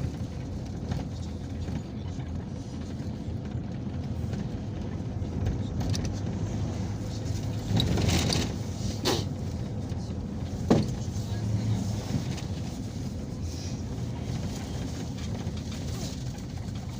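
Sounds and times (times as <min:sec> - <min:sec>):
engine and road rumble: 0:00.0 - 0:16.9.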